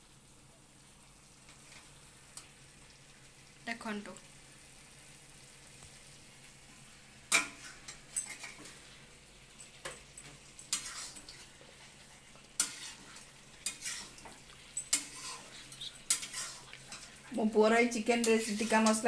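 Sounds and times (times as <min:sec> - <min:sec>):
faint steady background noise: 0:00.0 - 0:19.0
metal spoon scraping metal pot: 0:10.6 - 0:11.4, 0:12.6 - 0:19.0.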